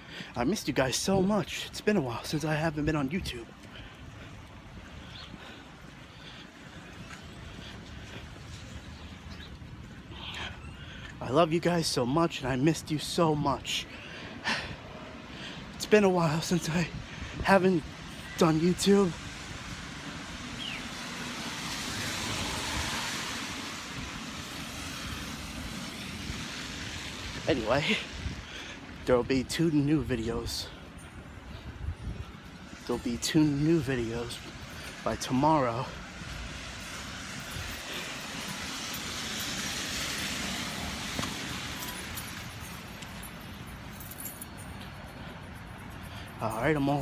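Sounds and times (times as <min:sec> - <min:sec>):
traffic on wet road: 0:00.0 - 0:47.0
car tyres hissing on wet street: 0:17.8 - 0:29.0, 0:33.5 - 0:43.1.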